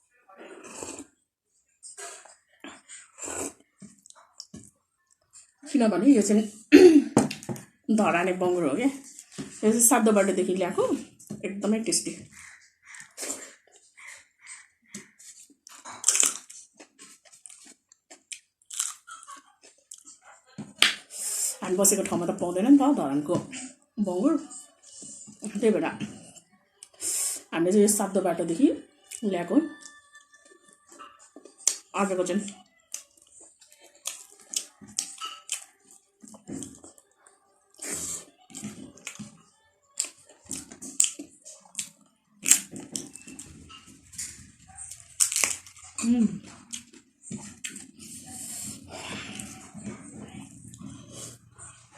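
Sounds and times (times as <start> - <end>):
person chewing crunchy food: 12.2 - 20.9, 29.0 - 37.1, 37.7 - 51.8.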